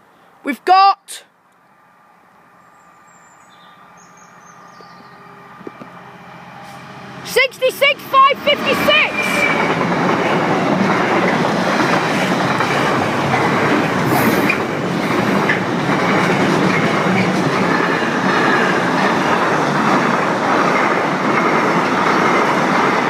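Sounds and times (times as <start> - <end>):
freight train wheels clattering: 7.3 - 23.0
high wheel squeal: 8.5 - 9.9.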